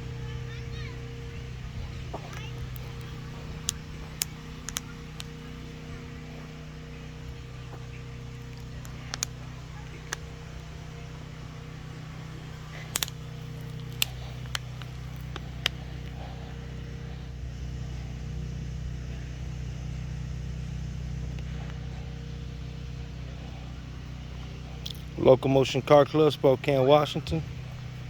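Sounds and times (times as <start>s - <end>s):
low engine hum: 0.0s - 28.0s
sharp clicks: 2.7s - 5.3s, 8.5s - 10.3s, 12.7s - 15.8s.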